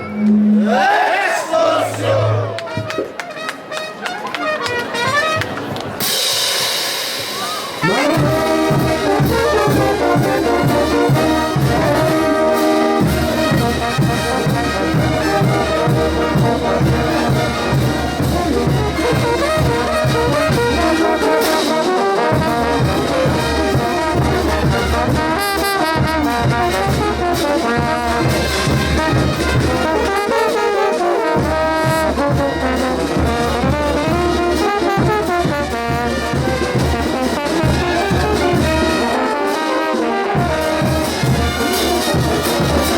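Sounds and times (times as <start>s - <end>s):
trumpets and trombones: 0.0s - 42.9s
steady drum beat: 4.9s - 42.9s.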